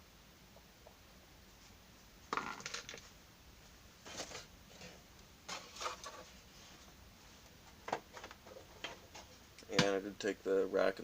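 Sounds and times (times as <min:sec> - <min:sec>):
small hard objects clattering: 0:02.3 - 0:03.1.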